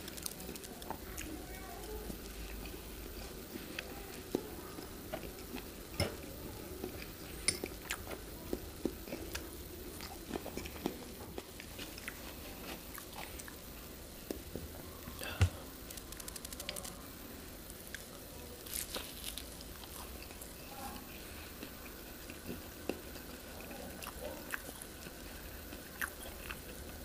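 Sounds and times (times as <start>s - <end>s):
person chewing food: 2.1s - 14.4s, 17.9s - 27.0s.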